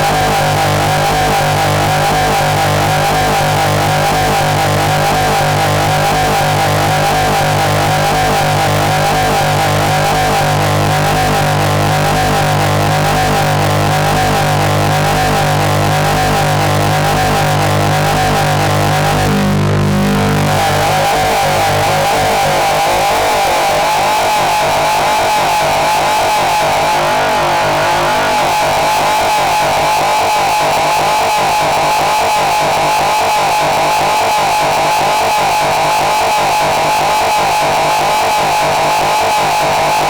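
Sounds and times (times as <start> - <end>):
wall of distorted noise: 0.0 - 31.3
low drones: 26.0 - 29.5
fast pulsing warbling layer: 26.4 - 29.2.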